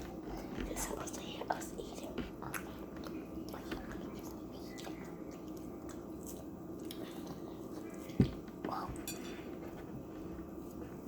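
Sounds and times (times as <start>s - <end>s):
person chewing food: 2.1s - 11.0s.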